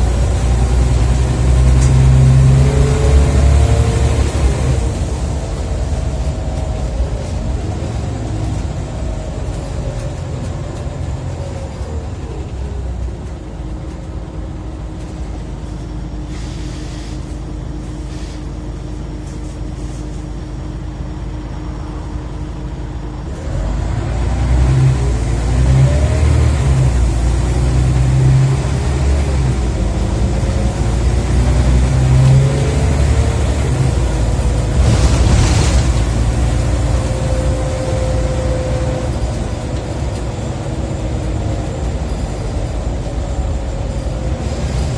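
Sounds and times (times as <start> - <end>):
bus engine revving and idling: 0.0 - 44.9
short hiss: 16.3 - 17.4.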